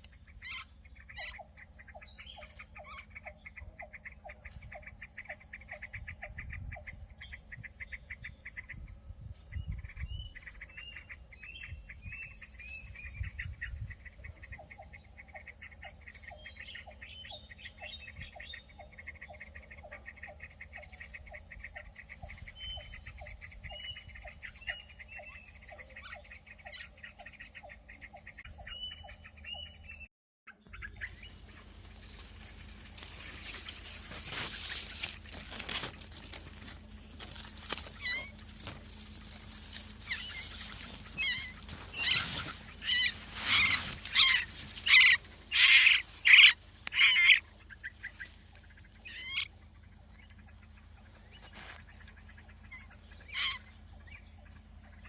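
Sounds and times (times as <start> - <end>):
birds chirping: 0.0 - 55.0
short falling bird calls: 30.7 - 49.5, 50.4 - 54.2.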